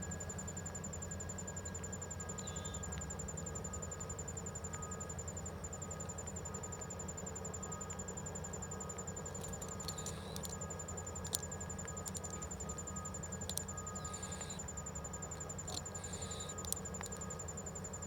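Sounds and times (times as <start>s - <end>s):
insect trilling: 2.4s - 3.0s, 9.3s - 18.0s
sharp clicks: 9.4s - 10.6s, 11.2s - 14.6s.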